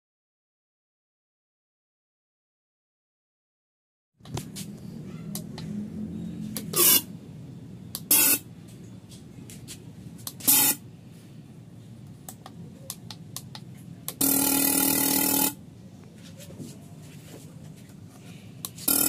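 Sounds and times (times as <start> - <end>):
low steady hum: 4.2 - 19.0.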